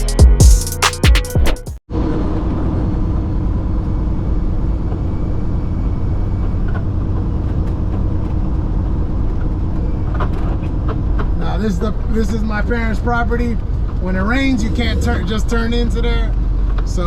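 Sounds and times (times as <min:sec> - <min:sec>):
intro music: 0:00.0 - 0:01.8
truck diesel engine droning: 0:01.9 - 0:17.0.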